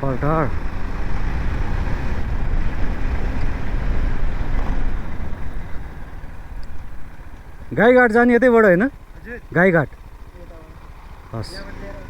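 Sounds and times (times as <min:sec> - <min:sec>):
wind rushing over microphone: 0:00.0 - 0:07.7
motorcycle engine running: 0:00.0 - 0:12.0.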